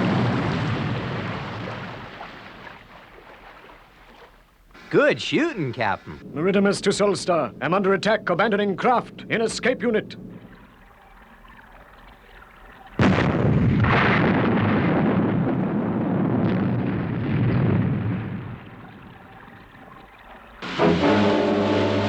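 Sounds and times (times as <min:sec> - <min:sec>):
explosion blast: 0:00.0 - 0:02.2, 0:13.0 - 0:18.9
explosion rumble: 0:00.0 - 0:02.4, 0:13.0 - 0:19.3.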